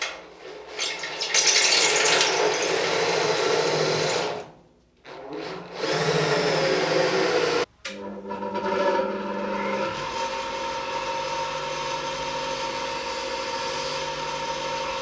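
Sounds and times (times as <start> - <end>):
power drill drilling into metal: 5.1 - 7.6, 12.0 - 15.0.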